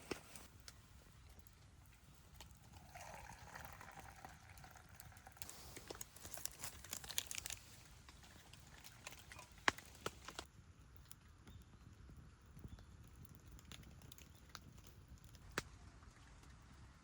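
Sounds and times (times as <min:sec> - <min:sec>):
liquid pouring into cup: 0:02.3 - 0:07.4.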